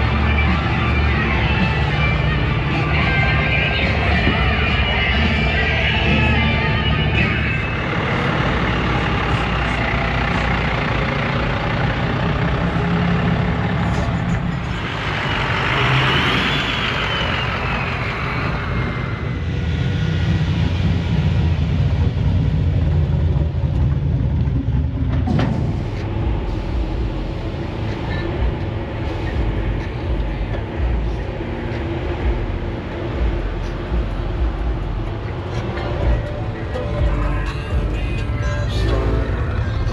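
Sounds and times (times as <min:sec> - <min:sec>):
truck engines rumbling: 0:00.0 - 0:39.9
hiss with whistle: 0:15.4 - 0:18.8.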